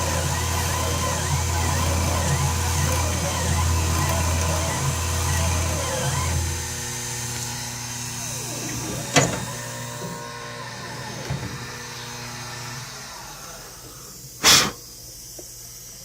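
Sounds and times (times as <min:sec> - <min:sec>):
stepper motors whining: 0:00.0 - 0:14.4
machine humming: 0:00.0 - 0:15.4
loud hissing burst: 0:13.4 - 0:15.1.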